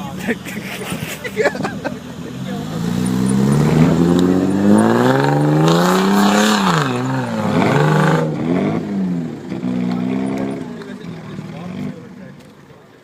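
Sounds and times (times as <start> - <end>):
engine revving hard: 2.3 - 12.1.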